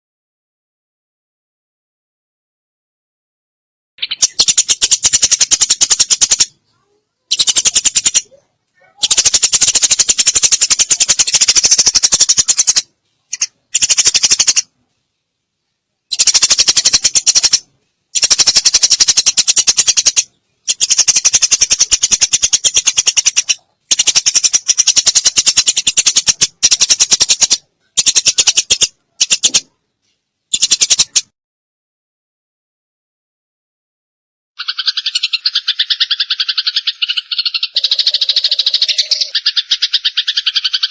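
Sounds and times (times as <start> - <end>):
sparrow chirping rapidly: 4.0 - 6.6, 7.2 - 14.7, 16.1 - 29.7, 30.5 - 31.3, 34.6 - 40.9.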